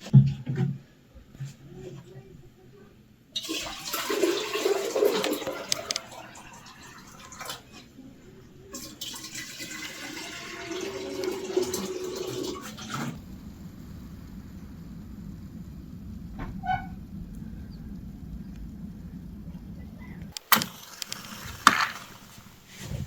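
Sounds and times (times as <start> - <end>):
water pouring and splashing: 3.4 - 7.9, 8.7 - 13.4, 20.4 - 23.0.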